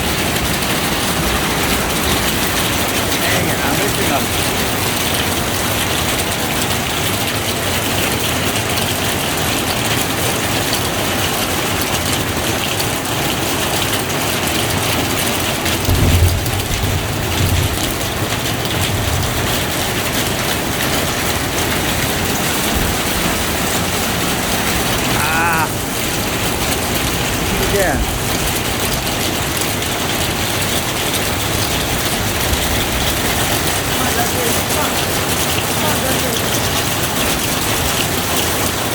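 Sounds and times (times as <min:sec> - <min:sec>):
thunder rumble: 0:00.0 - 0:06.6, 0:15.6 - 0:35.8
heavy rain pouring: 0:00.0 - 0:38.9.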